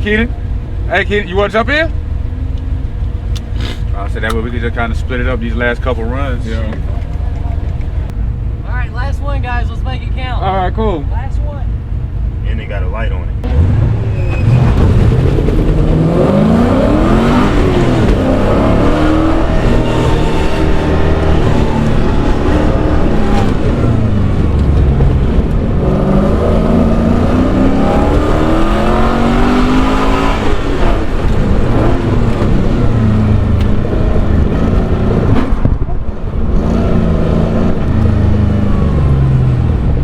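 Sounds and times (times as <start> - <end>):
car engine revving hard: 13.4 - 35.6, 36.4 - 39.9.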